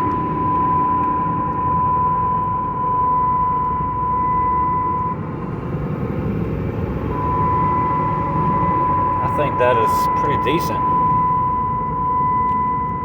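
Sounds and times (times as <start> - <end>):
diesel engine rumble: 0.0 - 13.0
road noise: 0.0 - 13.0
high-pitched tone: 7.1 - 11.8.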